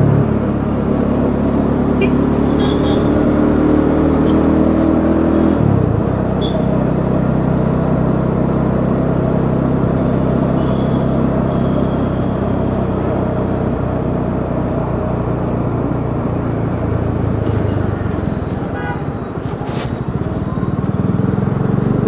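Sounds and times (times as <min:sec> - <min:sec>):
road and wind noise: 0:00.0 - 0:22.0
motorcycle engine running: 0:13.2 - 0:22.0.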